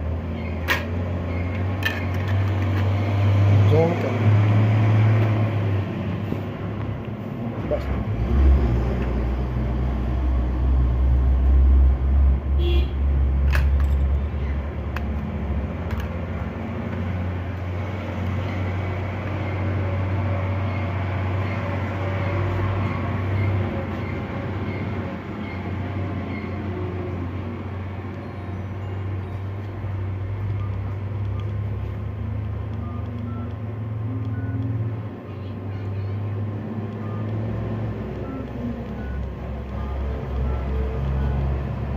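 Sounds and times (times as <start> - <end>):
sharp clicks: 29.6 - 34.8, 36.8 - 41.4.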